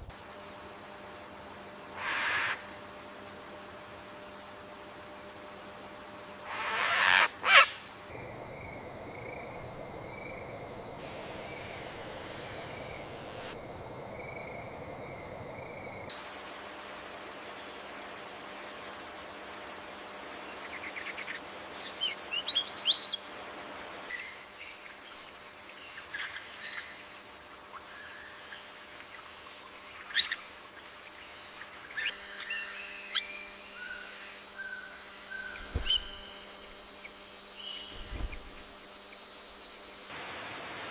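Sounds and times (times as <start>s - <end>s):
bird chirps and calls: 35.4s - 36.3s.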